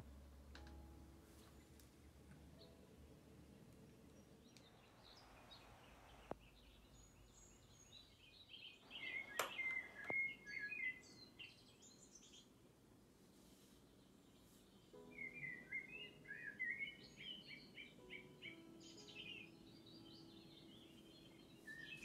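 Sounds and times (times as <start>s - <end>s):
small birds chirping: 1.3s - 22.0s.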